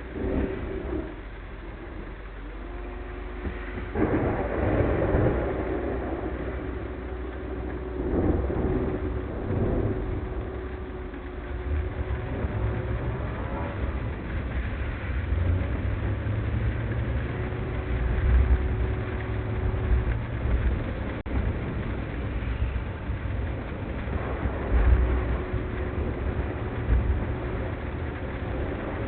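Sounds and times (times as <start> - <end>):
faint steady tone: 0.0 - 21.2
car engine and road noise: 0.0 - 29.0.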